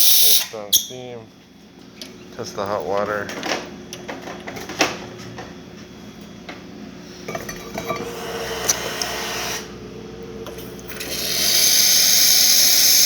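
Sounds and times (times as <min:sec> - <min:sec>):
cup clinking: 0:07.3 - 0:08.9
hiss of hot water and steam: 0:11.4 - 0:13.0.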